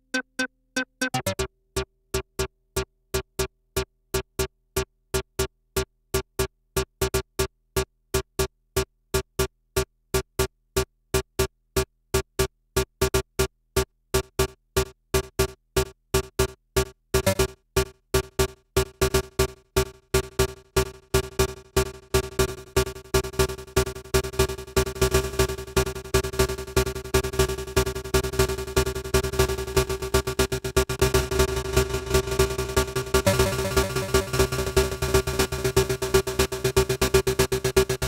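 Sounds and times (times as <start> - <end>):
synth staccato step sequence: 0.2 - 2.5, 14.4 - 38.0.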